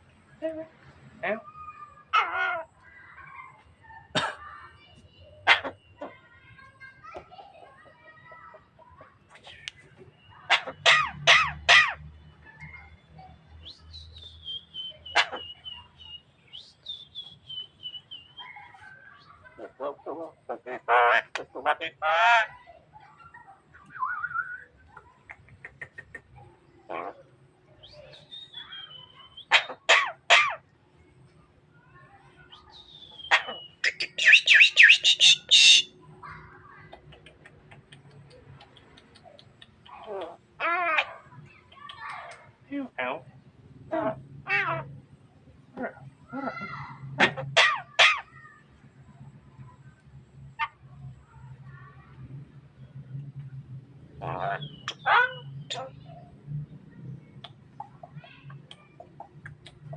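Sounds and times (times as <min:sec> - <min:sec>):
myna chattering call: 0:01.2 - 0:04.3, 0:05.3 - 0:07.0, 0:07.8 - 0:12.8, 0:18.3 - 0:30.6, 0:32.5 - 0:45.0
bird sharp downward call: 0:32.8 - 0:35.9
faint clicks: 0:36.9 - 0:40.4.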